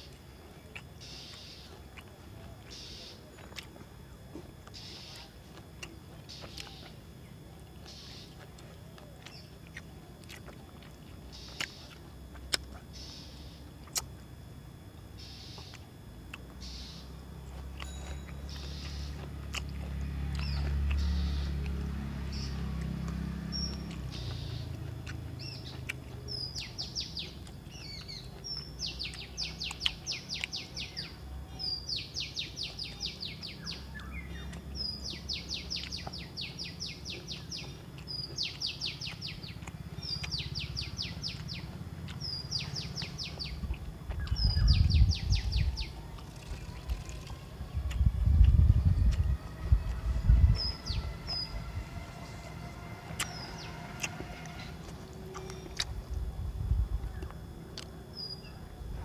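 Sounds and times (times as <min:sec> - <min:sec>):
songbird trilling: 0:00.7 - 0:01.7, 0:02.7 - 0:03.3, 0:04.7 - 0:05.3, 0:06.2 - 0:08.5, 0:11.2 - 0:12.0, 0:12.9 - 0:13.7, 0:15.2 - 0:15.9, 0:16.6 - 0:55.8
low rumble: 0:39.6 - 0:57.4.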